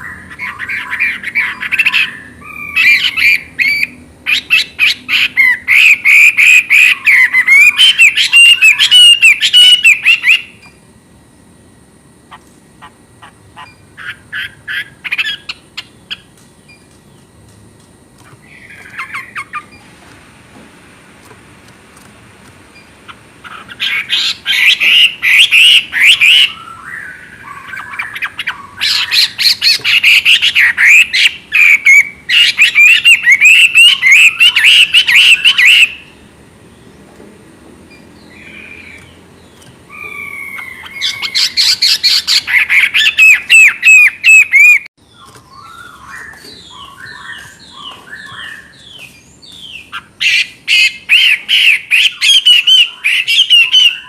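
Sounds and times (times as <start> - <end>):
bird singing whistled notes: 37.9 - 54.0.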